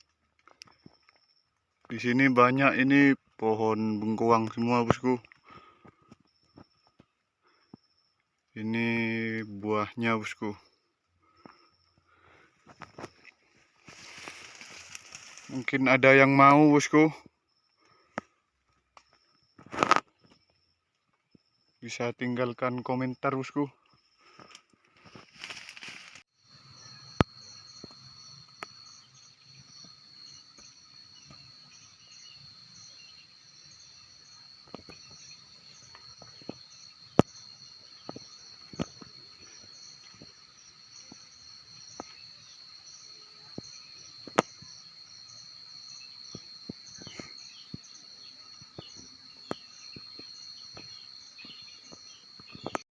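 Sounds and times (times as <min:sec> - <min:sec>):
insects chirring: 0:00.0 - 0:52.9
pulsing insect trill: 0:00.0 - 0:52.9.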